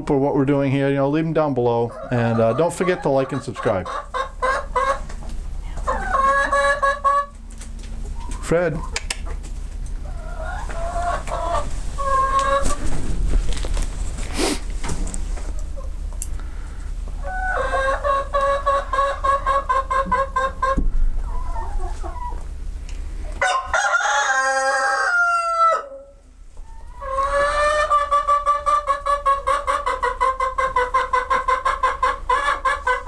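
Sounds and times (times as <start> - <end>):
chickens calling: 0.0 - 33.0
rooster crowing: 23.4 - 26.1.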